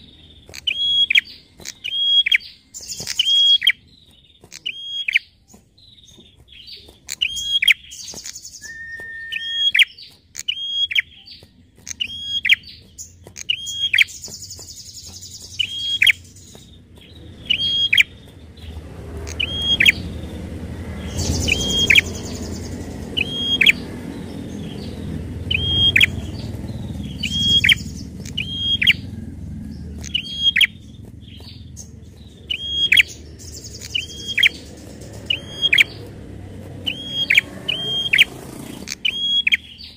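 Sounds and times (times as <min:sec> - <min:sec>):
bird clicking calls: 0:00.0 - 0:39.9
low rumble: 0:16.2 - 0:37.7
bird buzzy trill: 0:36.8 - 0:39.8.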